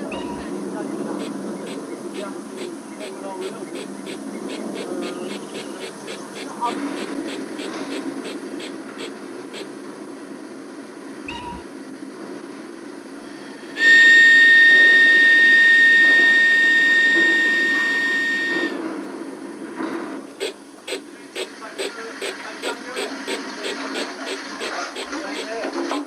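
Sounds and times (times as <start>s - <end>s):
model train chuffing: 0.0s - 10.0s, 13.7s - 18.8s, 19.6s - 26.0s
steam whistle blast: 13.8s - 18.8s.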